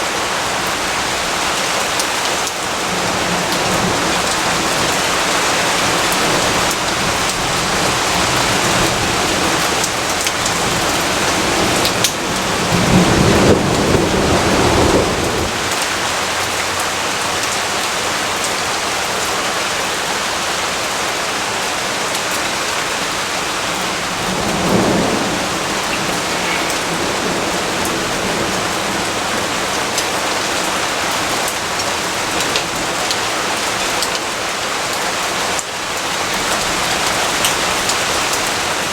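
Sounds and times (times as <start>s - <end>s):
heavy rainfall: 0.0s - 38.9s
low rumble of thunder: 2.8s - 15.8s, 23.5s - 30.5s.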